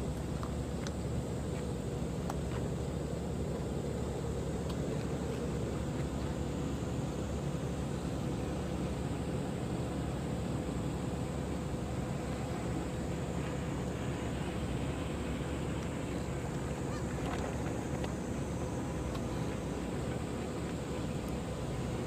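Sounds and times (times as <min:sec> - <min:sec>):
boat diesel engine rumbling: 0:00.0 - 0:22.0.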